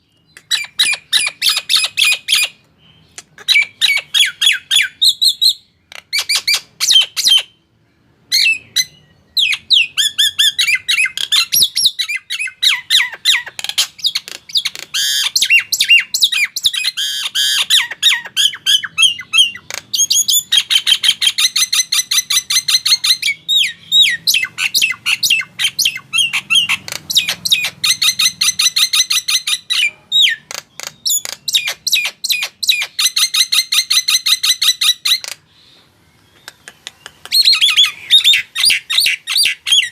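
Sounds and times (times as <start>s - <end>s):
myna squawking and whistling: 36.4s - 39.9s.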